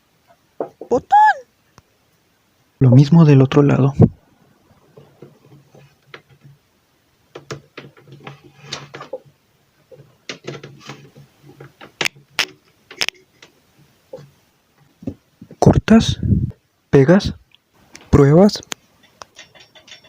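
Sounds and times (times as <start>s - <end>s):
audio crackles and pops: 11.1s - 16.6s.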